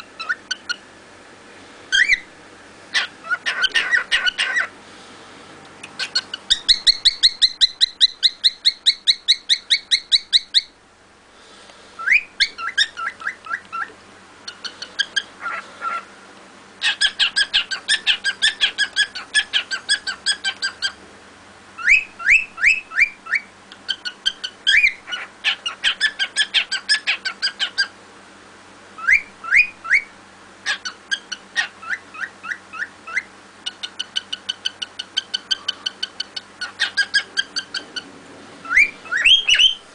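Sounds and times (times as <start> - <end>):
cockatiel chirping: 0.0 - 0.8, 1.9 - 2.3, 2.9 - 4.7, 5.9 - 10.8, 12.0 - 13.9, 14.5 - 16.1, 16.8 - 21.0, 21.8 - 27.9, 29.0 - 38.0, 38.6 - 39.8.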